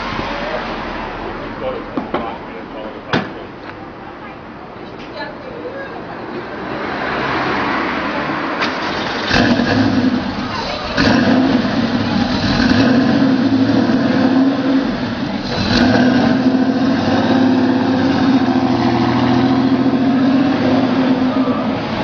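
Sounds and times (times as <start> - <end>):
car engine running: 8.6 - 22.0.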